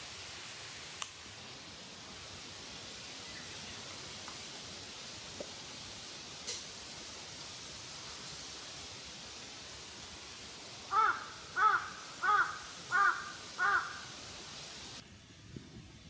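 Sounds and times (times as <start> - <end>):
steady background hiss: 0.0 - 16.0
crow cawing: 10.9 - 14.2.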